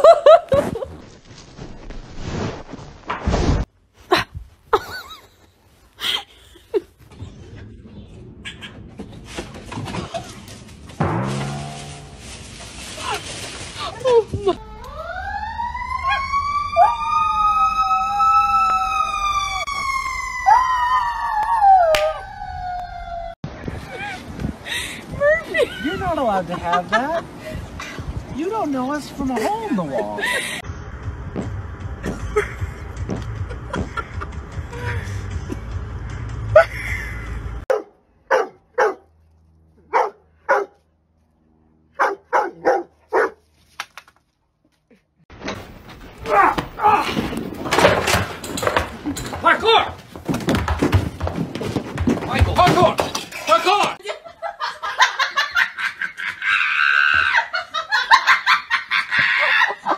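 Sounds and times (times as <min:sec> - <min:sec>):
dog howling long wail: 0:14.8 - 0:23.4
dog barking: 0:37.7 - 0:39.0, 0:39.9 - 0:40.8, 0:42.0 - 0:43.4.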